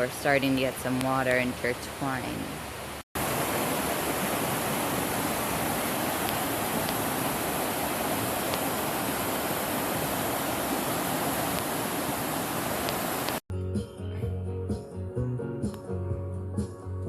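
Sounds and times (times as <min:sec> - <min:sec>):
river water over rocks: 0:00.0 - 0:13.4.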